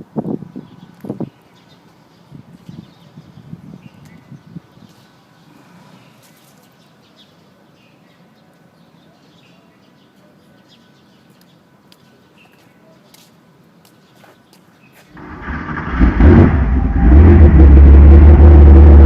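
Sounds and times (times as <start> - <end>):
small birds chirping: 0.5 - 15.2.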